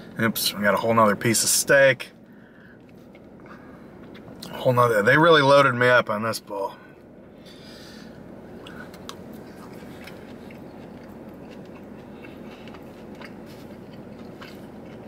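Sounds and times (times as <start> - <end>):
steady low hum: 0.0 - 15.0
mouth clicks chewing: 8.6 - 15.0.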